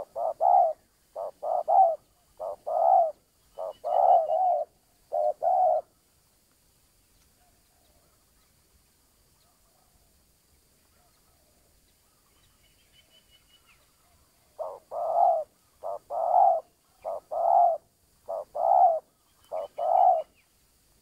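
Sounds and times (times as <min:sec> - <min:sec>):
dove cooing: 0:00.0 - 0:05.9, 0:14.5 - 0:20.4
small bird chirping: 0:00.0 - 0:05.9, 0:10.8 - 0:20.6.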